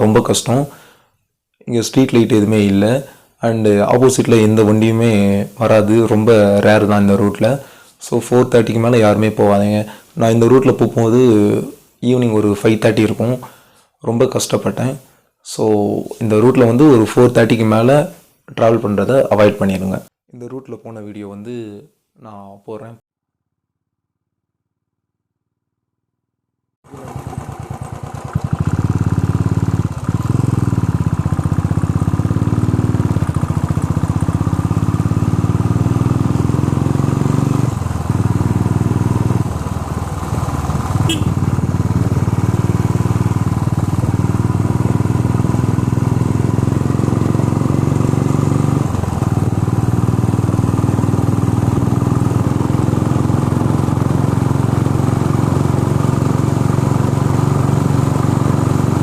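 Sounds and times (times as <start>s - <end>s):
motorcycle engine revving: 26.9s - 59.0s.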